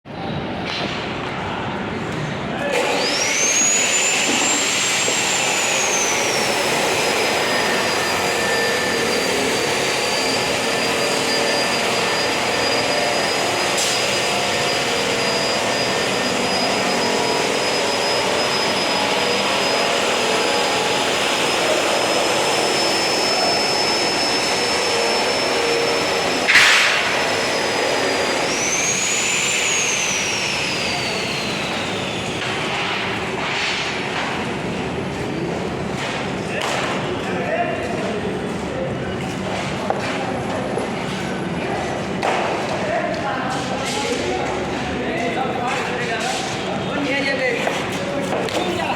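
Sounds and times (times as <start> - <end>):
construction din: 0.1 - 48.9
high-speed motor whining: 2.8 - 33.2.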